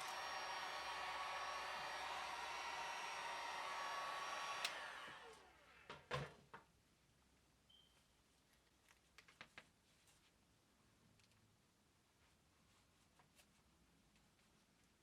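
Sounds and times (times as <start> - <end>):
fan winding down: 0.0 - 5.6
heat gun blowing: 0.0 - 5.6.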